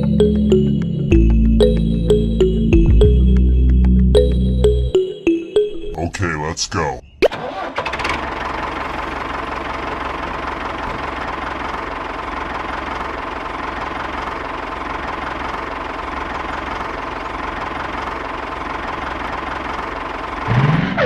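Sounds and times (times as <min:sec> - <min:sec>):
tractor engine idling: 0:06.0 - 0:20.7.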